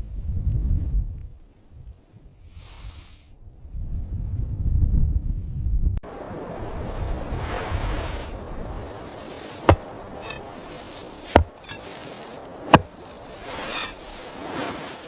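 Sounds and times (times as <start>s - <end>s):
soft rushing noise: 6.2s - 15.0s
sharp knocks: 9.7s - 10.4s, 11.3s - 11.8s, 12.7s - 12.9s.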